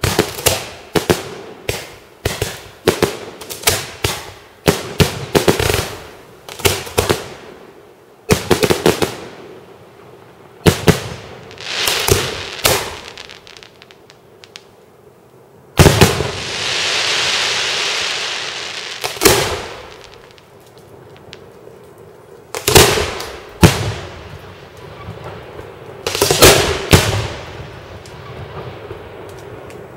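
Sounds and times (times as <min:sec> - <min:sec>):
fireworks bursting: 0:00.0 - 0:14.8, 0:15.7 - 0:29.9
fireworks hiss: 0:10.7 - 0:14.7, 0:15.7 - 0:21.8, 0:22.4 - 0:29.9.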